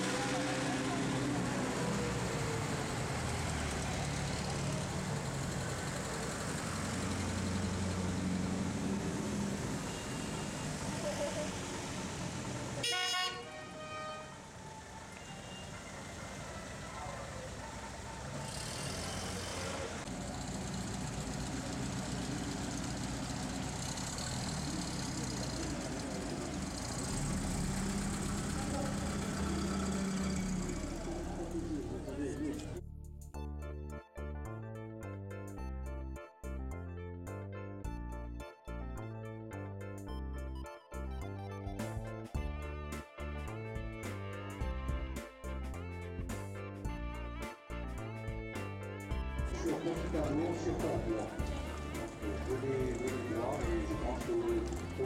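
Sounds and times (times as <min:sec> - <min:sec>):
car engines humming low: 0:00.0 - 0:32.9, 0:49.1 - 0:55.0.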